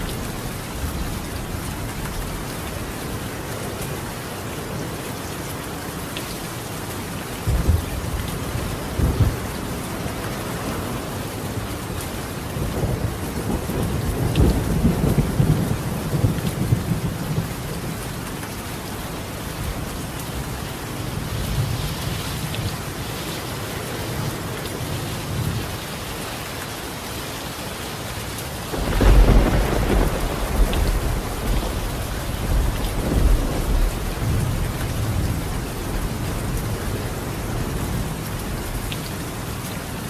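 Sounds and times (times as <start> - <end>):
rain on a tiled roof: 0.0 - 40.0
thunder rumbling: 7.4 - 9.8, 12.6 - 18.2, 28.7 - 38.8.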